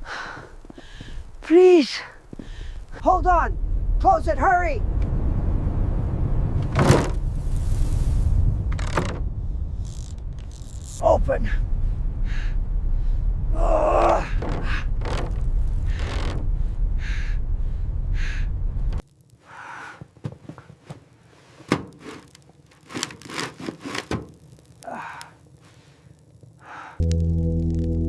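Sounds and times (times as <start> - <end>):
loud deep rumbling: 2.6 - 19.0
sharp knocks and thunks: 6.6 - 7.2, 14.0 - 16.5.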